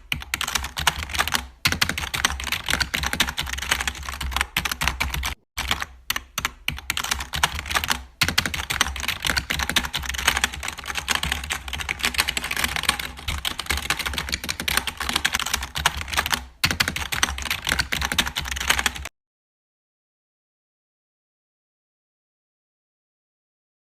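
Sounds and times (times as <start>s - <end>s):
rapid typing clicks: 0.0s - 19.1s.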